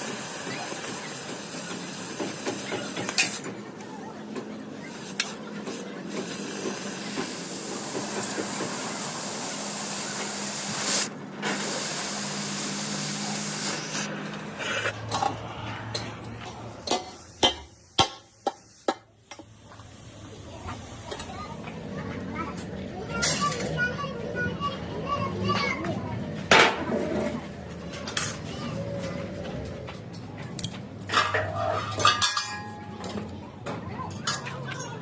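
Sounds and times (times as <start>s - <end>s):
steady air hiss: 4.9s - 15.0s.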